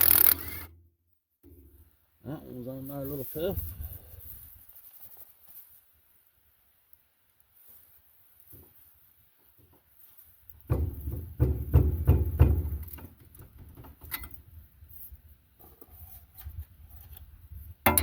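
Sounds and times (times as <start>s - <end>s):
metal knocks on tiller tines: 10.7s - 14.4s.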